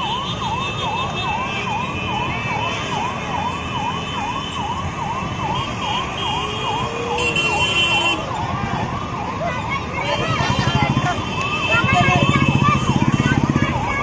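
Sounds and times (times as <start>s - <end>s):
emergency vehicle siren: 0.0s - 14.0s
low traffic rumble: 0.0s - 14.0s.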